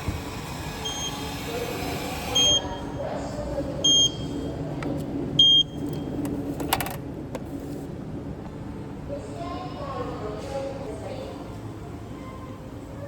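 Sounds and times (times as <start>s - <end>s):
steady machine hum: 0.0s - 6.2s.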